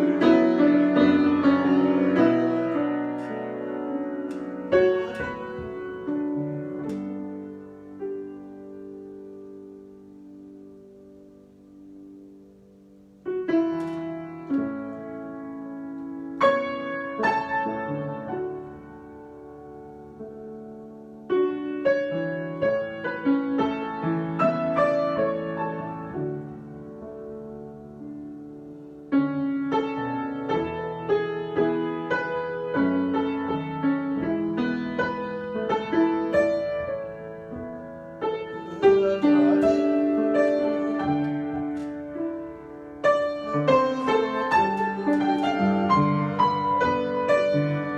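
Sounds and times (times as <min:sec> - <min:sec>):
piano improvisation: 0:00.0 - 0:47.9
instrumental chords ringing: 0:34.7 - 0:47.9.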